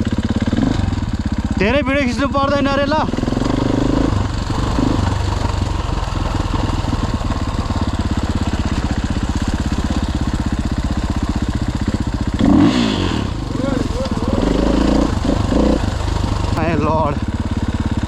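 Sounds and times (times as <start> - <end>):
dirt bike engine idling: 0.0 - 18.0.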